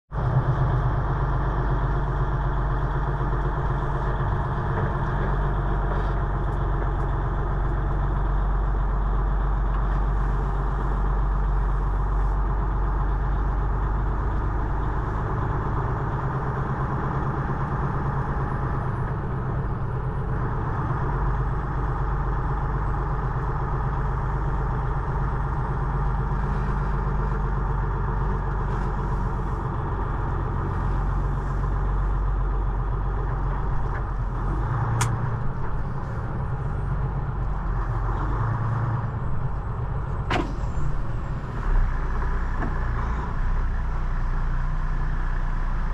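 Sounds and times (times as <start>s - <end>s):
diesel truck engine droning: 0.1s - 45.9s.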